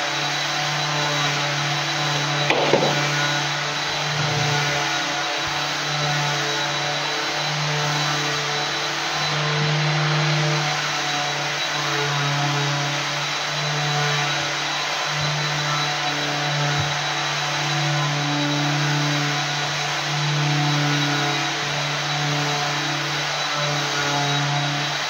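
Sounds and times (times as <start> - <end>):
floor machine motor running: 0.9 - 7.8.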